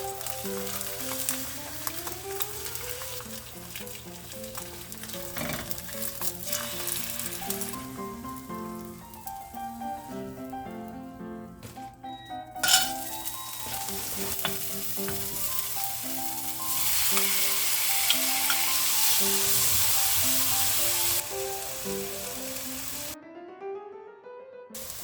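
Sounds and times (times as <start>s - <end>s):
food sizzling in a frying pan: 0.0s - 11.0s, 12.5s - 23.2s, 24.8s - 25.0s
soft background music: 0.0s - 25.0s.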